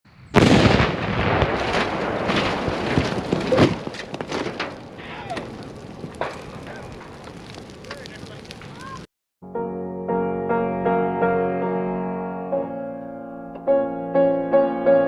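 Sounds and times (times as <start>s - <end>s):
explosion rumble: 0.1s - 9.1s
sharp cracks and thuds: 0.3s - 9.1s.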